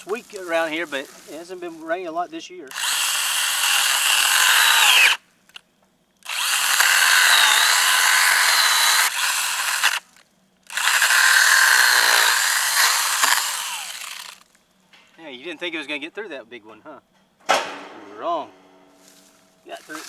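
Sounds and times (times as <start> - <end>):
mini chainsaw cutting log: 0.0 - 1.4, 2.7 - 5.2, 6.2 - 14.5, 19.8 - 20.0.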